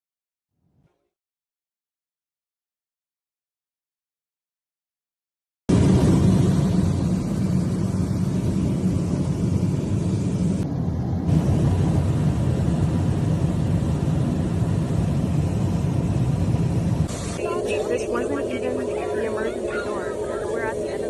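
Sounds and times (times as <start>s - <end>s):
airliner cabin roar in flight: 5.7s - 21.0s.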